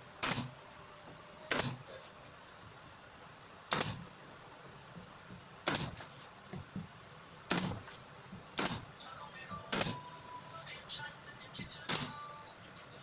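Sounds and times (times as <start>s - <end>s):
nail gun shots into wood: 0.2s - 0.6s, 1.5s - 1.8s, 3.7s - 4.1s, 5.6s - 6.1s, 7.5s - 7.9s, 8.6s - 8.9s, 9.7s - 10.0s, 11.9s - 12.2s.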